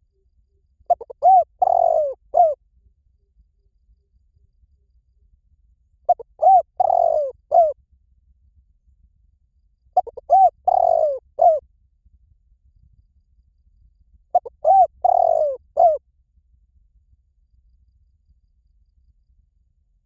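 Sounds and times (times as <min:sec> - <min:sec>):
dove cooing: 0:00.9 - 0:02.6, 0:06.1 - 0:07.8, 0:10.0 - 0:11.6, 0:14.3 - 0:16.0.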